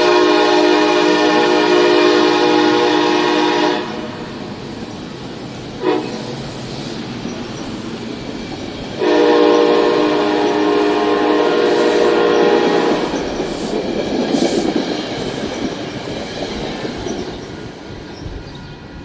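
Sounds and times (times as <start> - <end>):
train air horn blasts: 0.0 - 5.0, 5.6 - 6.8, 9.0 - 13.4
train running noise: 0.0 - 19.0.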